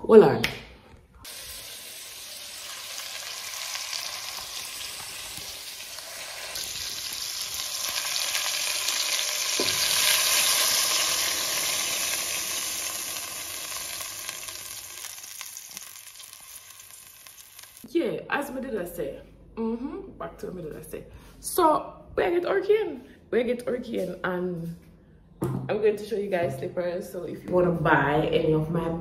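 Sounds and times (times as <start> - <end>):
food sizzling in a pan: 1.2 - 17.9.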